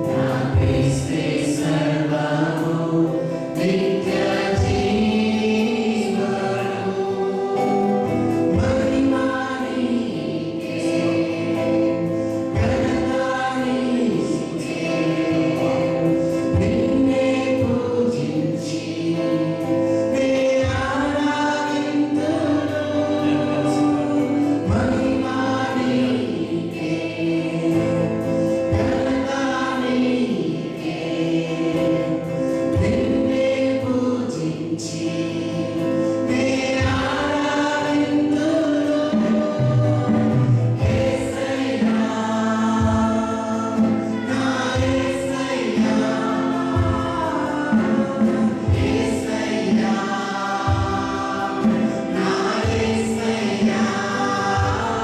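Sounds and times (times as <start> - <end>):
group singing gospel song: 0.0 - 55.0
sustained instrumental accompaniment: 0.0 - 55.0.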